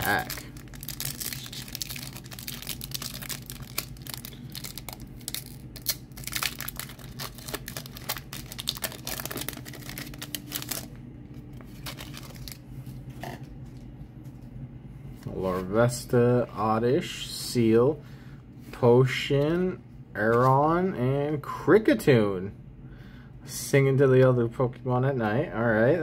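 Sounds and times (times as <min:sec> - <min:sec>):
foil wrapper tearing and crinkling: 0:00.0 - 0:10.9, 0:11.7 - 0:12.6
steady low hum: 0:00.0 - 0:26.0.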